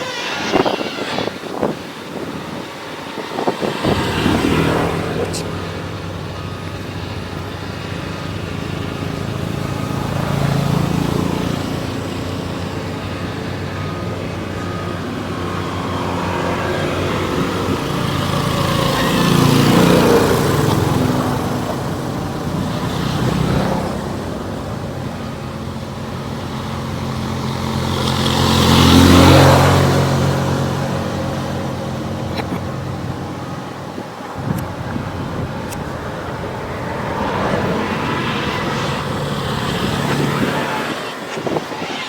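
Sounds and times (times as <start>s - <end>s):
vehicle engine running: 2.0s - 41.2s.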